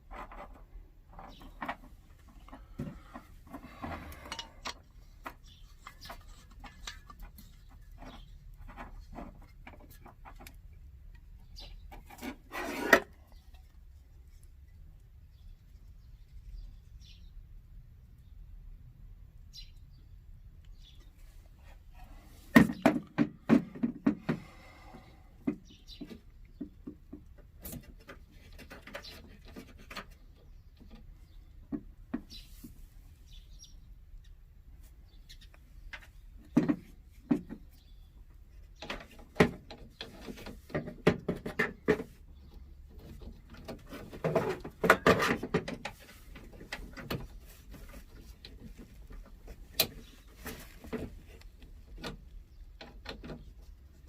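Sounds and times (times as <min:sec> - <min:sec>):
objects handled clicking and rattling: 0:00.0 - 0:14.8.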